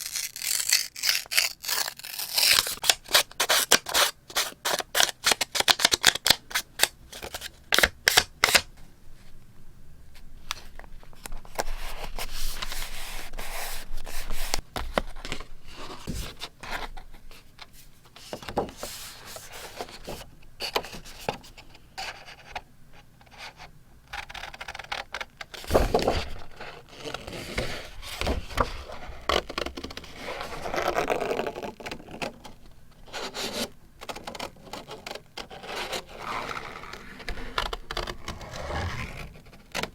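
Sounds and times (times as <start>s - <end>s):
scissors snipping paper: 0.0s - 6.9s
paper rubbing and shuffling: 10.6s - 21.4s, 25.6s - 32.2s.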